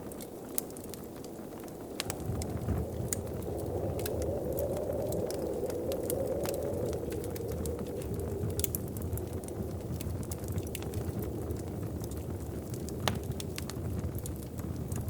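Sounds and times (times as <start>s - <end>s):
wood fire crackling: 0.0s - 15.0s
wind whooshing: 2.1s - 11.8s.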